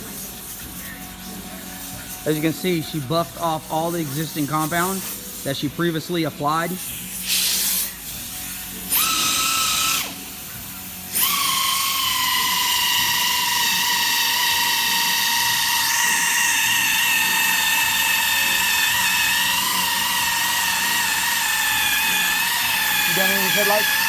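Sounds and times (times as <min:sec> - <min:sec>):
electric buffer whining: 0:08.6 - 0:24.0.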